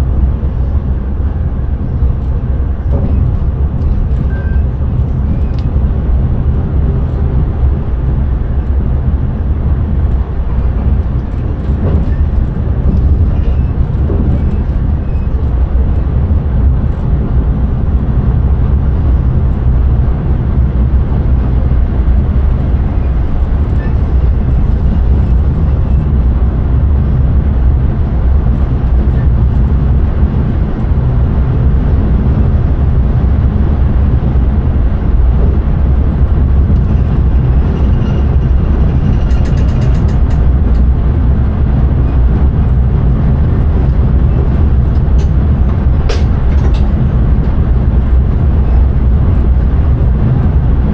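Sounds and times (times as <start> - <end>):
train running at speed: 0.0 - 50.9
light ticks and rattles: 35.2 - 50.8.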